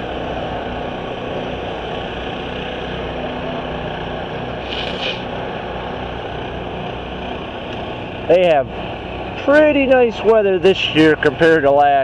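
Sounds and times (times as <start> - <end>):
vehicle engine humming: 0.0 - 12.0
brief high hiss: 4.6 - 5.3.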